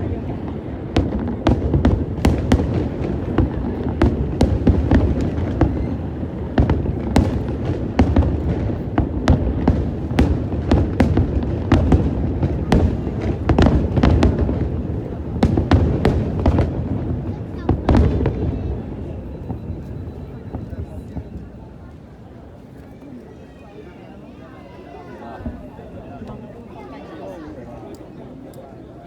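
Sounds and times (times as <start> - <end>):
rumble of fireworks booms: 0.0 - 22.2
fireworks bangs and crackles: 0.0 - 22.7, 25.4 - 26.5.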